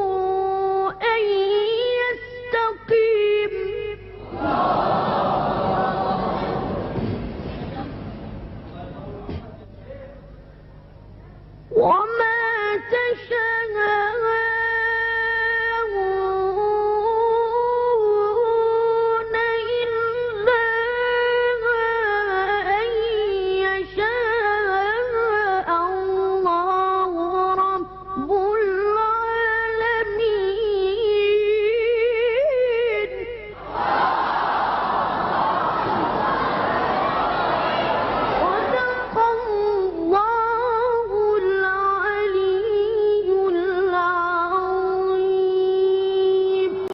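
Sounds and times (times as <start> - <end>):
child reciting melodically: 0.0 - 4.1, 11.7 - 33.2, 38.4 - 46.9.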